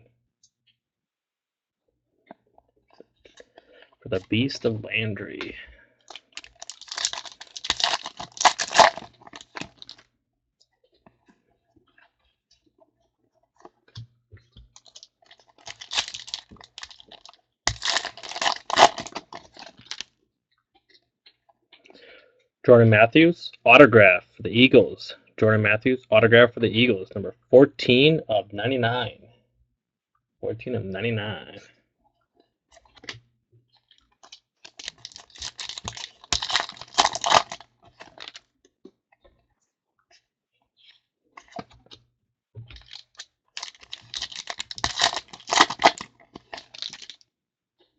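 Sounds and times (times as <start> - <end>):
wrappers torn and crinkled: 6.1 - 10.0, 14.8 - 20.1, 34.2 - 38.4, 42.8 - 47.2.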